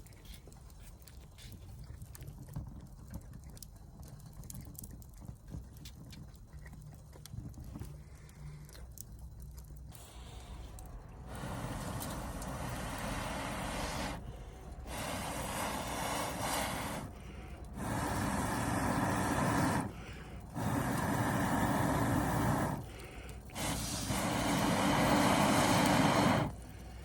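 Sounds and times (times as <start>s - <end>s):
hissing puffs of blown air: 9.9s - 27.0s.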